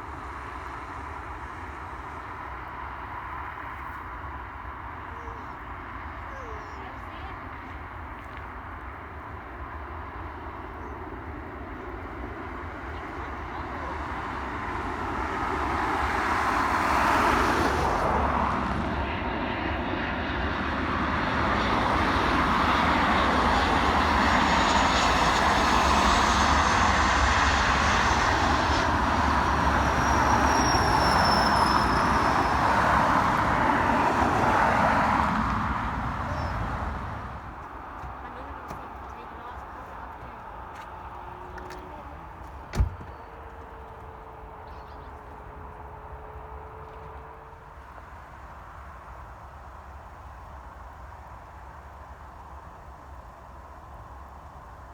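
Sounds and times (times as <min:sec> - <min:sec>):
airliner engines roaring: 0:00.0 - 0:54.9
high engine whine: 0:10.1 - 0:51.6.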